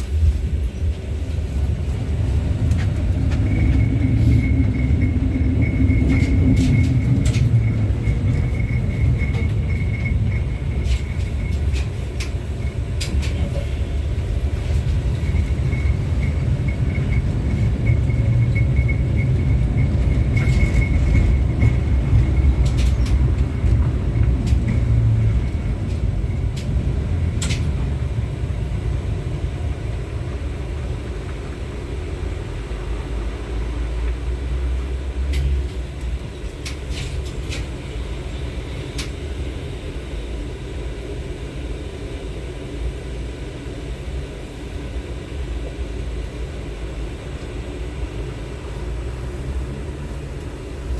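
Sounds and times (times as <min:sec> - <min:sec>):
rail clicks and knocks: 0:00.0 - 0:29.0
tram wheels rumbling: 0:00.0 - 0:50.9.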